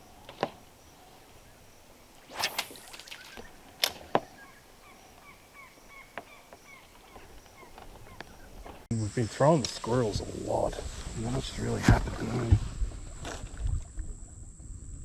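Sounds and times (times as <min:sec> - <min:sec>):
faint chirps: 0:00.8 - 0:09.3
fishing line cast whoosh: 0:02.1 - 0:04.4.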